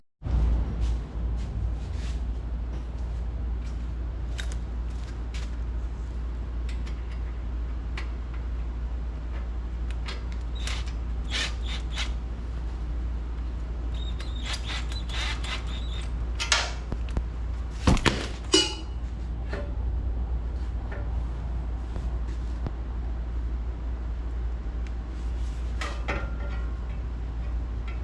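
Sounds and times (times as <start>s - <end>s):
steady low hum: 0.2s - 28.0s
knocks and clinks: 18.5s - 19.7s.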